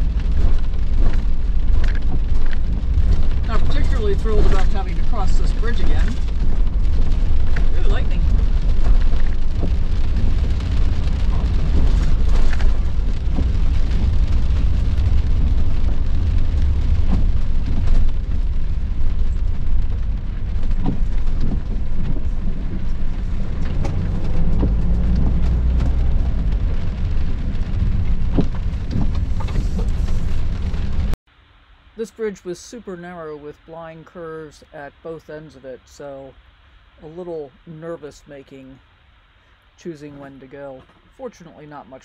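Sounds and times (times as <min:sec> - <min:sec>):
rain pattering on windshield: 0:00.0 - 0:31.2, 0:32.0 - 0:42.0
vehicle low rumble: 0:00.0 - 0:31.2.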